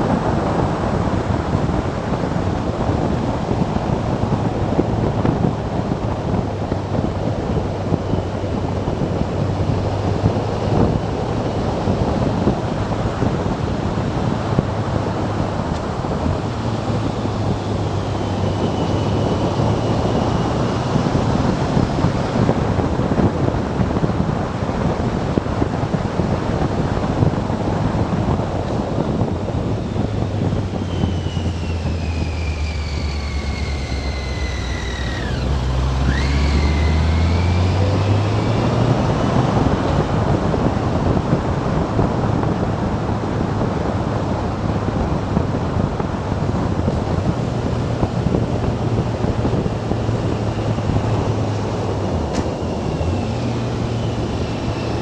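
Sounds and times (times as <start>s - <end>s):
motorcycle engine hum: 0.0s - 55.0s
wind rushing over microphone: 0.0s - 55.0s
high whine falling in pitch: 28.9s - 41.0s.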